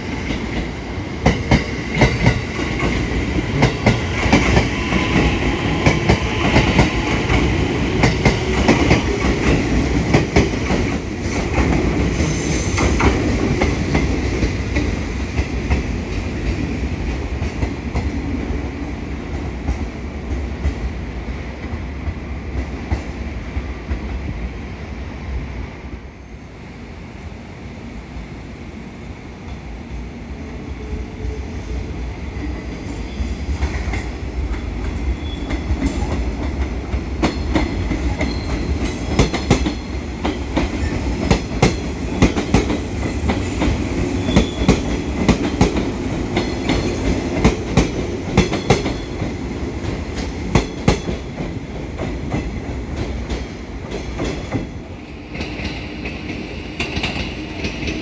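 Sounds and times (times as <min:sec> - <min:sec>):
train wheels clicking over rail joints: 0:00.1 - 0:16.7, 0:33.6 - 0:58.0.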